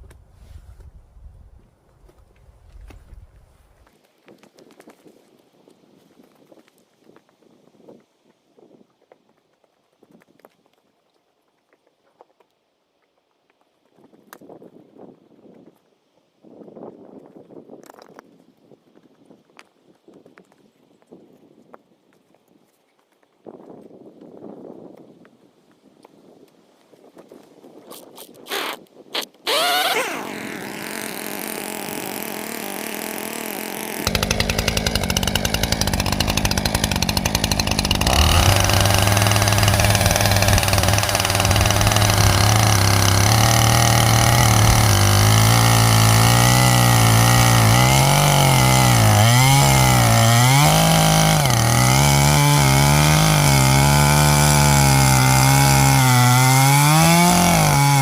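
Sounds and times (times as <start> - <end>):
chainsaw starter pulls: 27.9 - 58.0
chainsaw cutting logs: 28.0 - 58.0
chainsaw running: 28.5 - 58.0.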